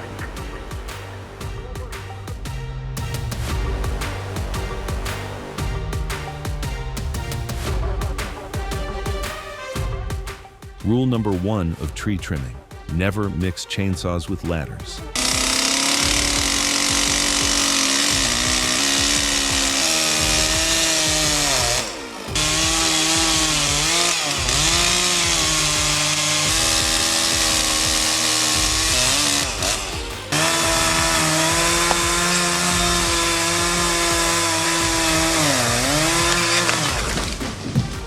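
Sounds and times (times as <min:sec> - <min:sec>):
chainsaw cutting at high revs: 0:15.2 - 0:38.0.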